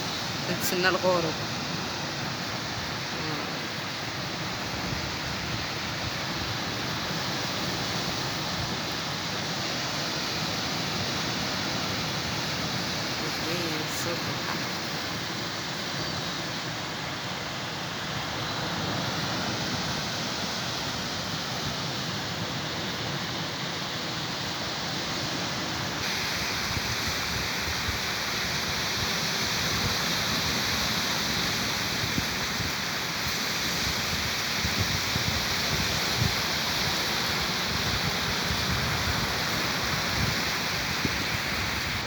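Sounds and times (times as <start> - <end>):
sea surf washing on shore: 0.0 - 42.0.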